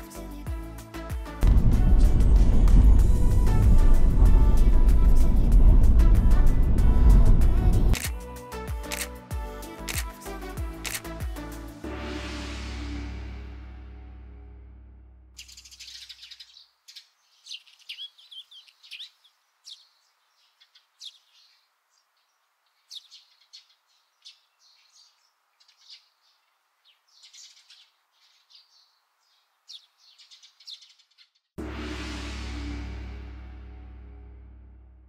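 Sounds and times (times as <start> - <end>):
small birds chirping: 15.4 - 31.6.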